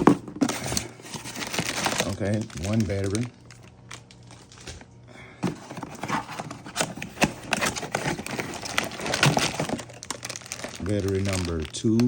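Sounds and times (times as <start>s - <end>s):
plastic packaging rustling: 0.0s - 12.0s.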